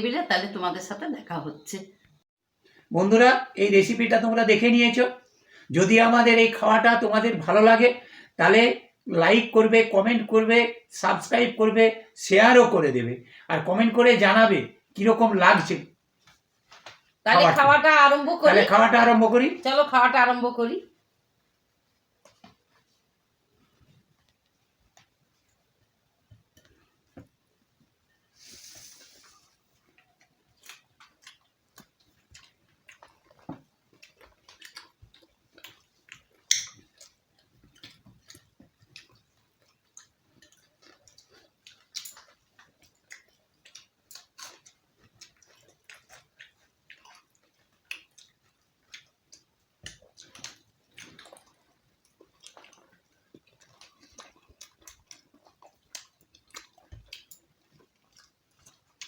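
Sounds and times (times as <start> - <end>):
wet chewing: 28.5 - 59.0
eating clicks and crackles: 29.1 - 59.0.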